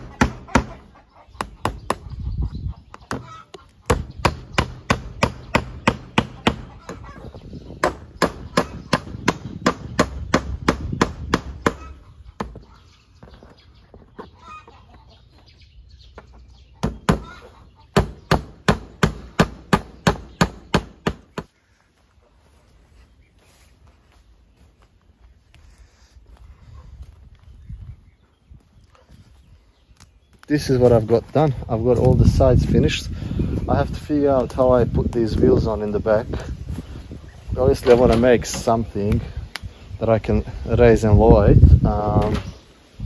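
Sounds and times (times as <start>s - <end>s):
chickens clucking: 0.0s - 4.5s, 6.0s - 9.6s, 11.2s - 18.3s.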